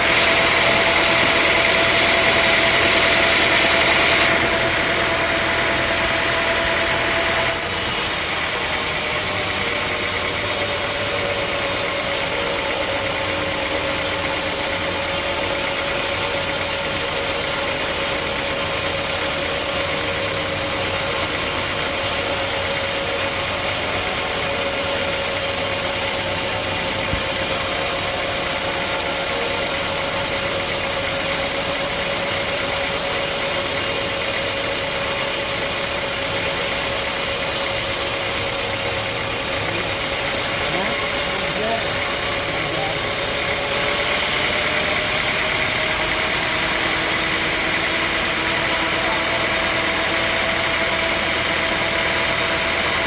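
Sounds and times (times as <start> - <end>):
sawmill machinery whining: 0.0 - 53.0.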